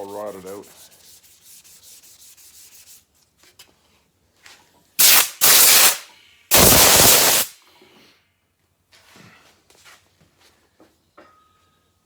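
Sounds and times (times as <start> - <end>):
rushing hiss bursts: 5.0 - 7.6.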